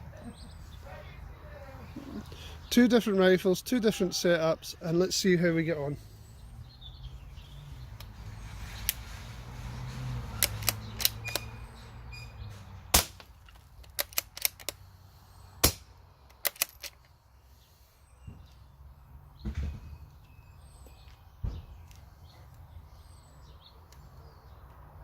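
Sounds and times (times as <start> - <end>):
rifle bolt clicks: 10.4 - 11.5, 13.4 - 14.8, 16.3 - 17.1.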